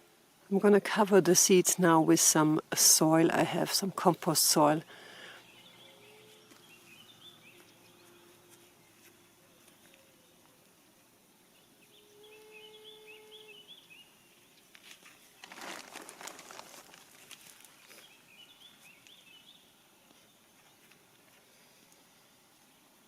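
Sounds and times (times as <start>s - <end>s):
birds chirping: 3.8s - 10.6s, 16.3s - 20.9s
soil rustling and pattering: 14.7s - 19.2s.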